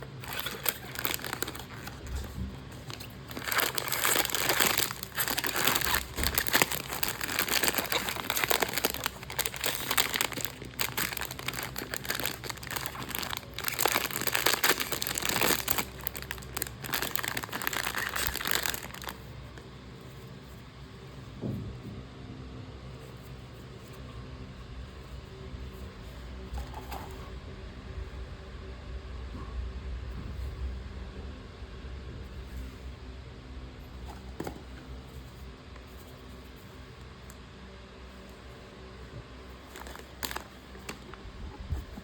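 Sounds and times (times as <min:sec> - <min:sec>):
packaging crinkling: 0:00.0 - 0:19.4, 0:39.6 - 0:42.0.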